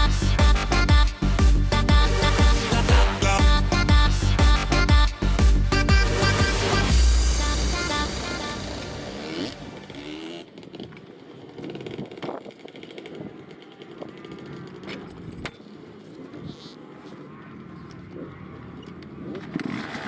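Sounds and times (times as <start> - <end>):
faint motorcycle engines: 9.1 - 19.5.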